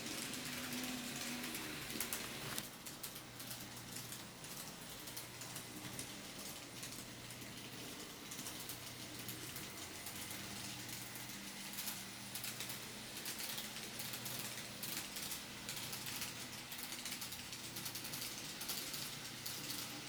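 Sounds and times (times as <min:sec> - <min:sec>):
model train motor hum: 0:00.0 - 0:02.6
wheels clicking on rails: 0:00.0 - 0:20.0.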